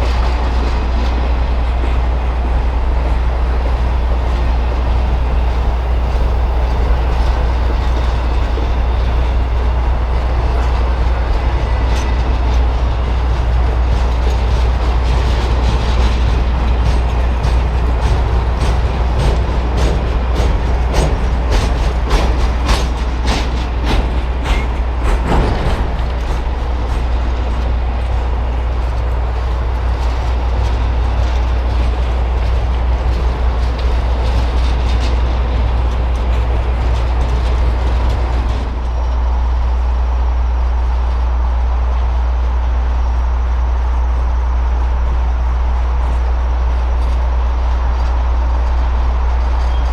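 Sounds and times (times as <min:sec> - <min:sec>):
wheels clicking over rail joints: 0:00.0 - 0:39.4
train rumbling past: 0:00.0 - 0:49.9.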